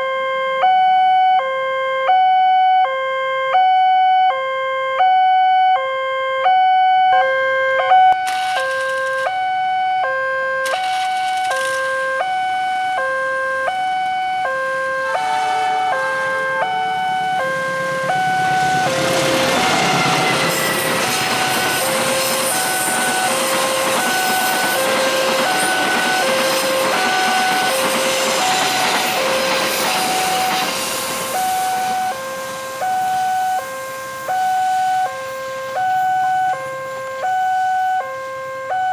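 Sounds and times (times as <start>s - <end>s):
level crossing alarm: 0.0s - 38.9s
passing train rolling: 7.8s - 38.6s.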